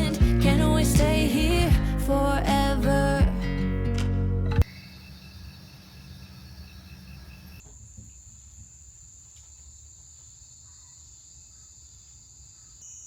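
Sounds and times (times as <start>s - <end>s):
insects chirping and trilling: 4.6s - 13.0s.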